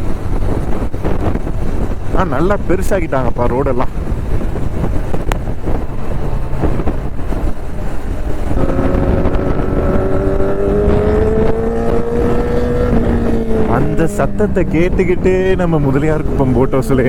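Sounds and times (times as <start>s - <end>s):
road rumble: 0.0s - 17.0s
wind rush: 0.0s - 17.0s
motorcycle engine rising in pitch: 4.2s - 17.0s.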